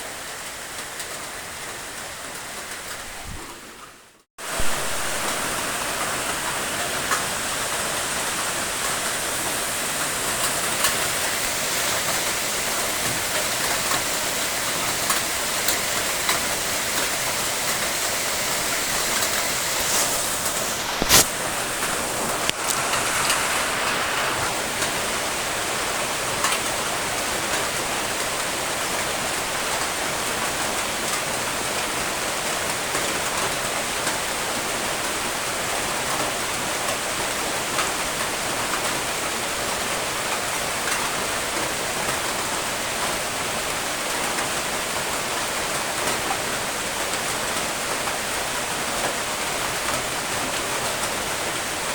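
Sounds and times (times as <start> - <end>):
steady rain falling: 0.0 - 51.9
sharp loud click: 20.0 - 21.3.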